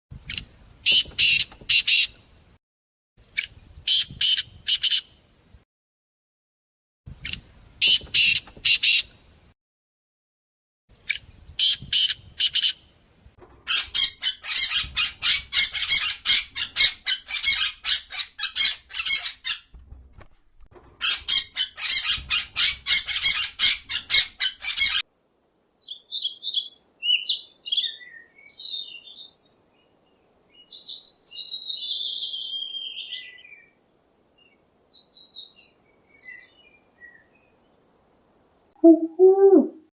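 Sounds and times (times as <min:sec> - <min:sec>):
bird squawking: 0:00.9 - 0:02.1, 0:07.8 - 0:09.1
soft bird chirps: 0:25.8 - 0:33.8, 0:34.4 - 0:37.8.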